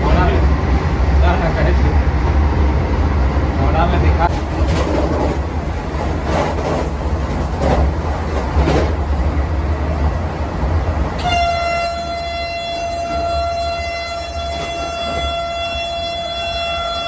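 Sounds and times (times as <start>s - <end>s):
train rumbling on track: 0.0s - 17.0s
train horn: 11.2s - 17.0s.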